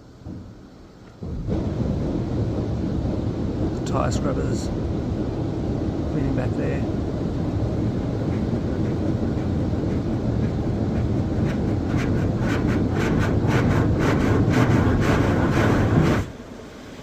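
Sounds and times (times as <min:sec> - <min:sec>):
car wash machine rumbling: 0:00.0 - 0:17.0.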